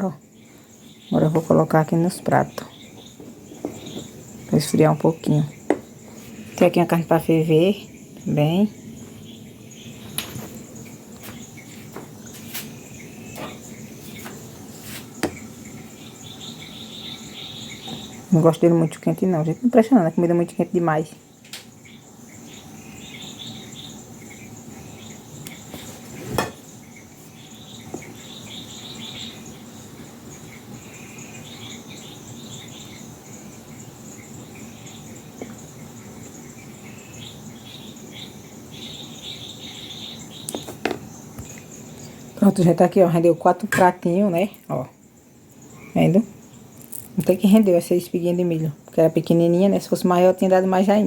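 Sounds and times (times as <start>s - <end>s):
crickets chirring: 0.0s - 51.0s.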